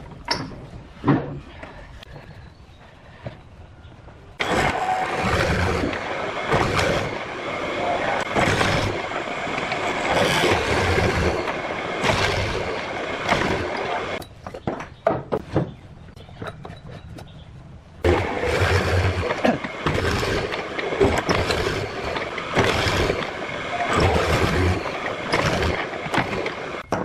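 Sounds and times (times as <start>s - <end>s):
power tool cutting wood: 4.4s - 14.2s, 18.0s - 26.8s.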